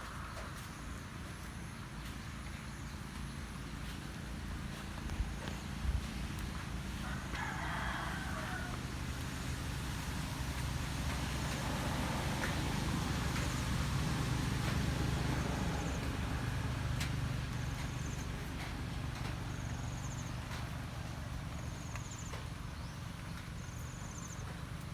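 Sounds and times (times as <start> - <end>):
rooster crowing: 7.0 - 9.0.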